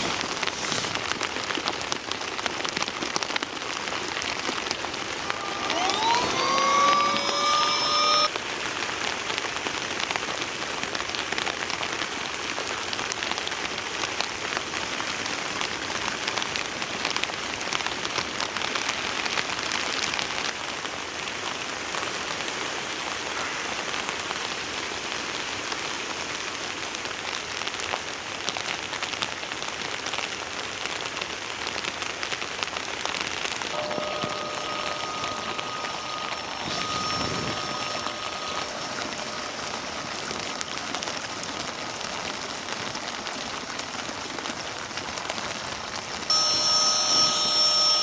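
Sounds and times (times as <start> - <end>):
raindrops ticking on a surface: 0.1 - 5.1, 9.3 - 22.7, 24.0 - 33.7
heavy rain falling: 38.2 - 46.3.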